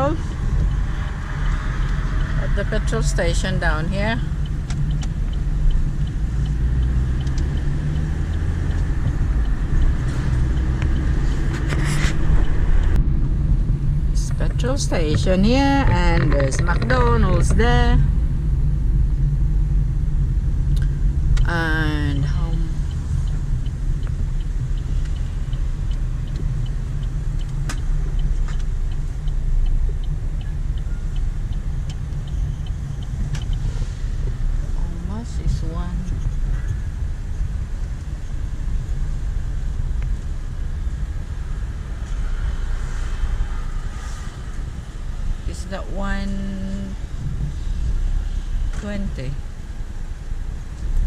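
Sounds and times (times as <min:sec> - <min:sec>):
car engine and road rumble: 0:00.0 - 0:51.0
light regular ticking: 0:00.0 - 0:51.0.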